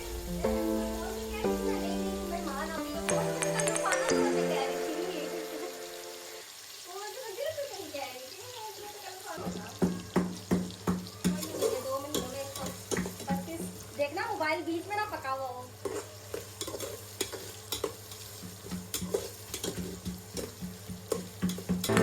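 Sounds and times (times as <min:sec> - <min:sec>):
food sizzling: 0:00.0 - 0:22.0
spoon scraping a pot: 0:11.2 - 0:13.3, 0:15.8 - 0:22.0.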